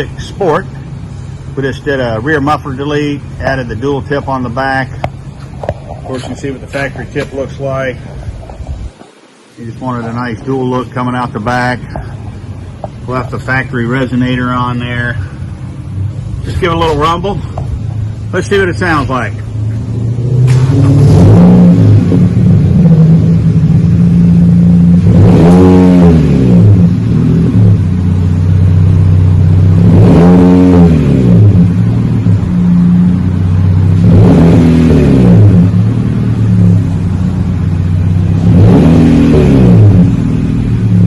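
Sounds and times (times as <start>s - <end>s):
car engine idling low rumble: 0.0s - 41.0s
car engine revving: 9.6s - 41.0s.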